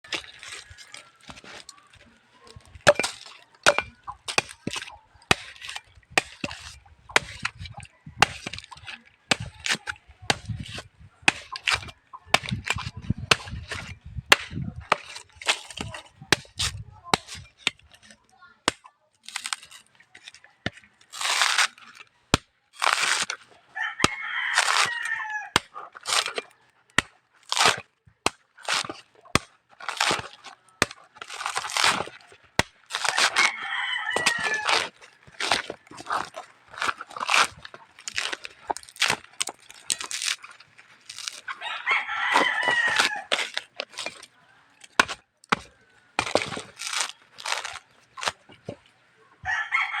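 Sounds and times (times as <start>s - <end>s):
coconut cracking and knocking: 0.0s - 41.6s, 42.2s - 48.9s
rasping scraping on coconut: 0.1s - 48.5s
rooster crowing: 23.8s - 25.6s, 33.2s - 34.8s, 41.5s - 43.3s, 49.4s - 50.0s.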